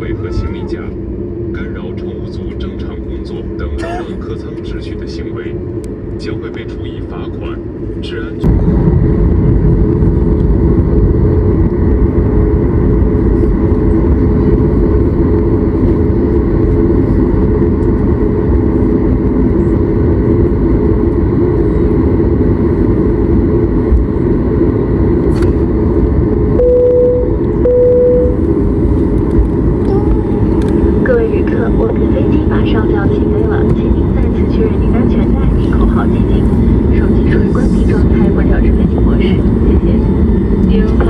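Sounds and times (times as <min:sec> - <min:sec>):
aircraft cabin rumble: 0:00.0 - 0:41.0
short mid-pitched tones: 0:26.6 - 0:28.4.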